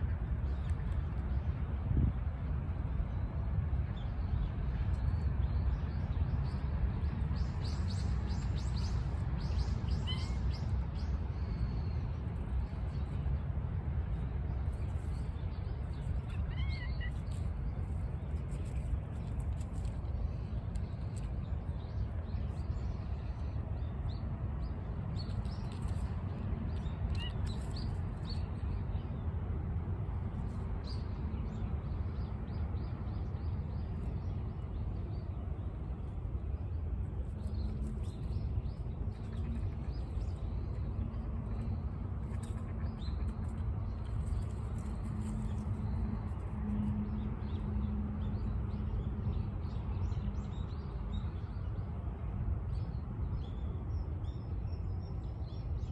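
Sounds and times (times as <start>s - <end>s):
low outdoor rumble: 0.0s - 55.9s
small birds chirping: 14.7s - 29.0s, 36.6s - 47.6s.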